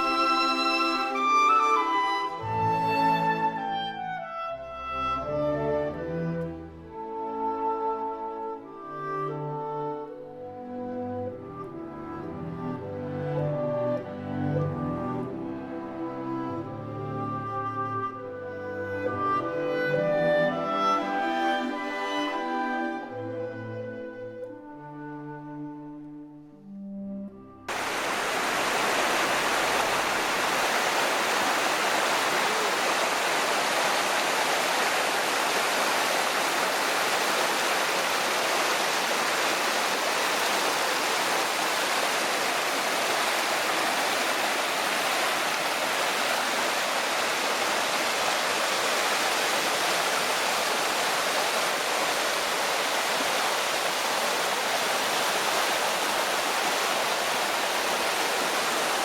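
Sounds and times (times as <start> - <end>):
water rushing over rock: 27.7 - 59.0.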